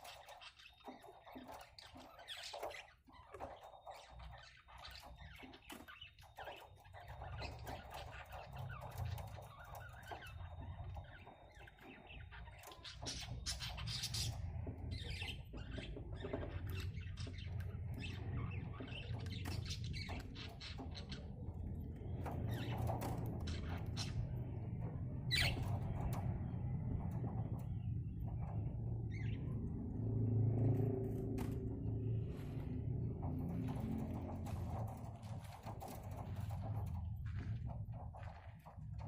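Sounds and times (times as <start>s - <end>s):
budgerigars squawking and chirping: 0.0s - 21.5s, 25.3s - 26.2s
low rumble: 13.0s - 39.0s.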